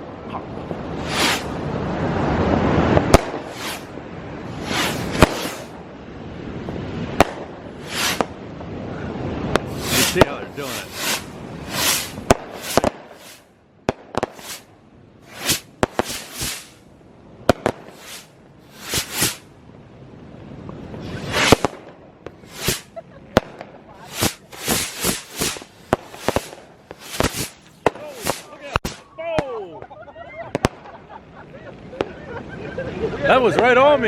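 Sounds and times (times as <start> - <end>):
fireworks hissing: 0.9 - 1.6, 3.0 - 3.9, 4.5 - 5.8, 7.8 - 8.3, 9.5 - 16.8, 17.6 - 19.5, 21.0 - 23.0, 23.9 - 29.0
firecrackers banging: 1.0 - 1.6, 2.7 - 3.9, 4.5 - 5.8, 7.1 - 8.4, 9.5 - 16.8, 17.5 - 19.4, 21.0 - 29.1.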